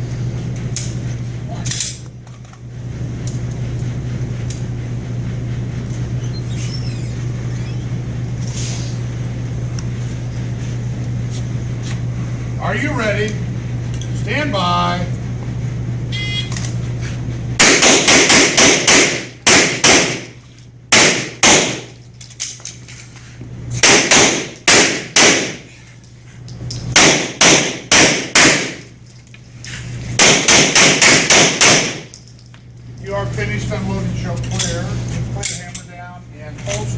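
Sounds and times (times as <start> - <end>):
pistol shots: 17.6 - 20.3, 20.9 - 21.9, 23.8 - 25.6, 27.0 - 28.8, 30.2 - 32.1.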